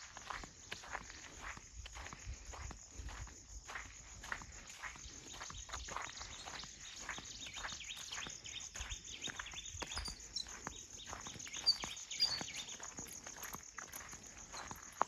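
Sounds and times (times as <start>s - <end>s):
high insect hum: 0.0s - 15.0s
bird chirps: 5.3s - 15.0s
footsteps through undergrowth: 5.5s - 15.0s.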